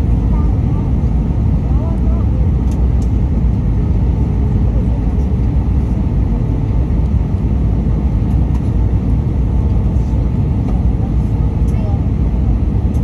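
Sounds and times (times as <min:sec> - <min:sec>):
airplane cabin noise: 0:00.0 - 0:13.0
airplane engines rumbling: 0:00.0 - 0:13.0.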